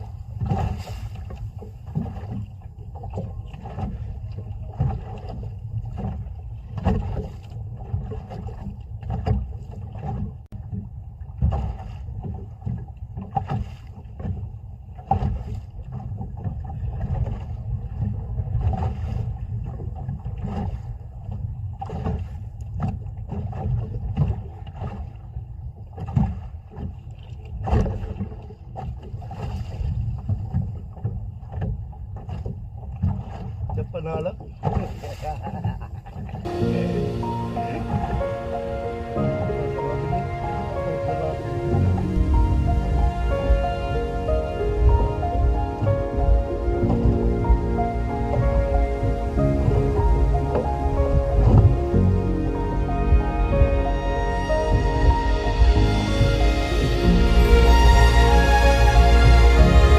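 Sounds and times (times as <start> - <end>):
water slapping against boat hull: 0.0 - 36.8
steady low rumble: 36.4 - 59.9.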